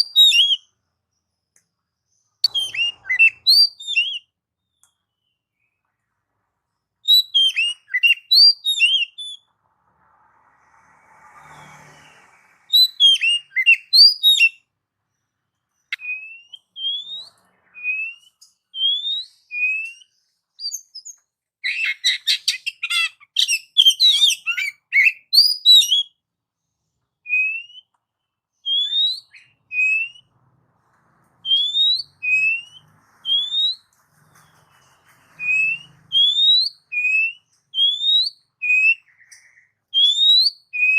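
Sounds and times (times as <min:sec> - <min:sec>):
songbird whistling and chattering: 0:00.0 - 0:00.7, 0:02.4 - 0:04.3, 0:07.0 - 0:09.5, 0:12.7 - 0:14.6, 0:15.9 - 0:26.1, 0:27.2 - 0:27.9, 0:28.6 - 0:30.3, 0:31.5 - 0:33.9, 0:35.4 - 0:40.9.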